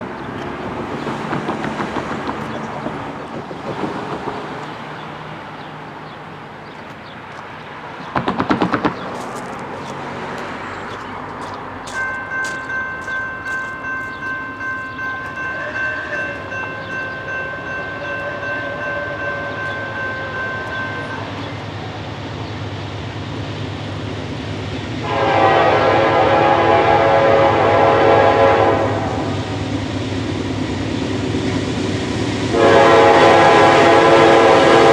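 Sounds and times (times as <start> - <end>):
diesel locomotive engine rumble: 0.0 - 34.9
locomotive bell ringing: 10.9 - 22.0
locomotive air horn: 17.4 - 21.1, 25.0 - 29.7, 32.5 - 34.9.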